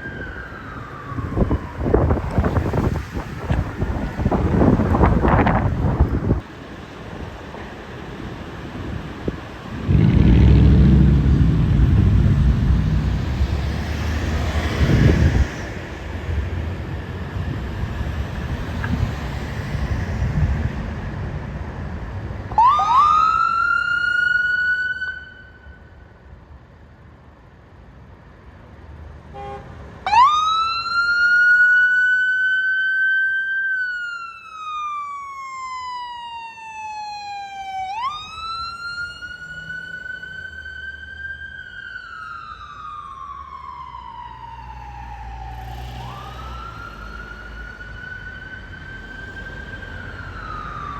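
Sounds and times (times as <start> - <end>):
heavy vehicle rumbling past: 8.9 - 16.6
electronic siren wailing: 9.7 - 14.1.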